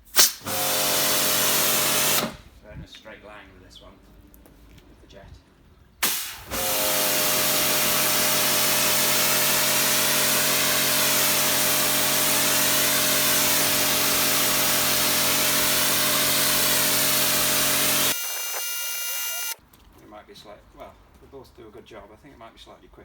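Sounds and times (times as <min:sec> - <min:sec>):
pressure washer pump humming: 0:00.2 - 0:02.4, 0:06.0 - 0:19.6
water jet hissing: 0:06.0 - 0:19.6.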